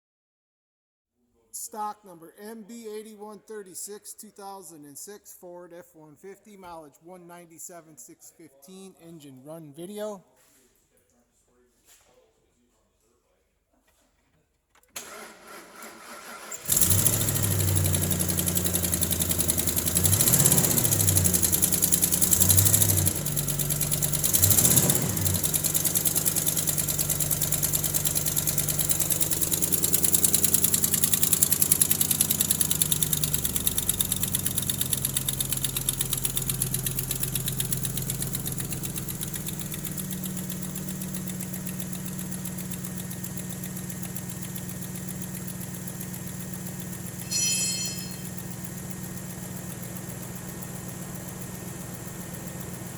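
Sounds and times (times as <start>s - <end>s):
truck engine starting and revving: 15.0s - 47.2s
engine idling: 15.0s - 52.9s.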